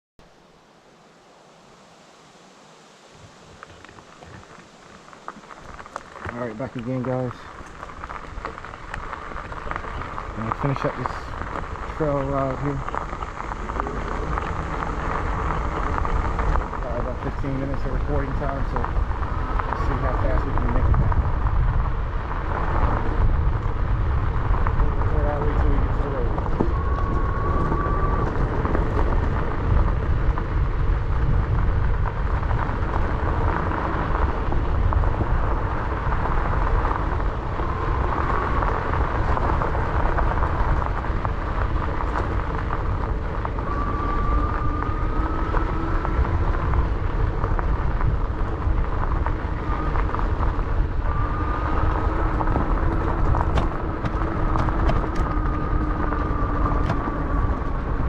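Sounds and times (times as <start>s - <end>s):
wind buffeting microphone: 3.2s - 58.0s
electric motor whine: 7.7s - 58.0s.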